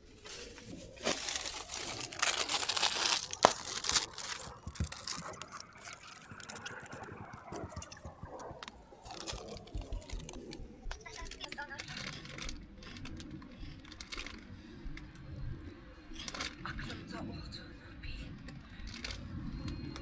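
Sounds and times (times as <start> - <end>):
gear rustling and crinkling: 0.0 - 16.7, 18.4 - 20.0.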